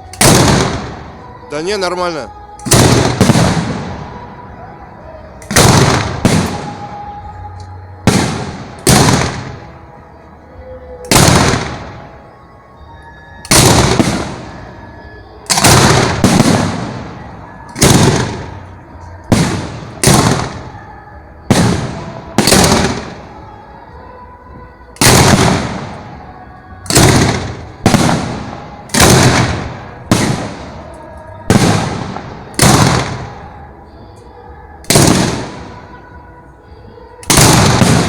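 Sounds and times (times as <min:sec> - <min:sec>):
fireworks bangs: 0:00.0 - 0:10.0, 0:10.6 - 0:12.3, 0:13.4 - 0:38.0
echoing rumble: 0:13.5 - 0:38.0.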